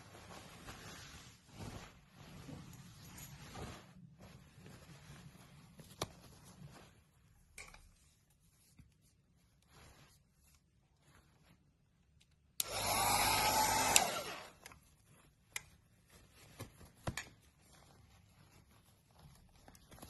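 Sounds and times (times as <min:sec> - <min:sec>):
electric blower whining: 0:12.6 - 0:14.6.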